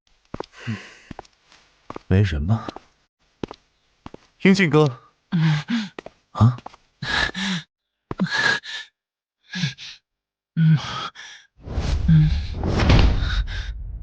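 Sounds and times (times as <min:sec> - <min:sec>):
person sighing and gasping: 0:00.6 - 0:01.2, 0:05.3 - 0:10.0, 0:10.6 - 0:11.5, 0:12.1 - 0:12.6.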